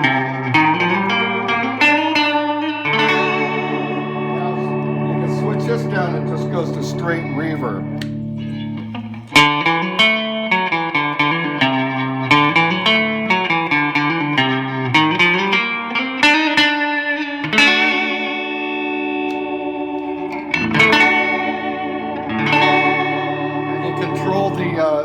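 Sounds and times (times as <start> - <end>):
electric guitar with reverb: 0.0 - 25.0.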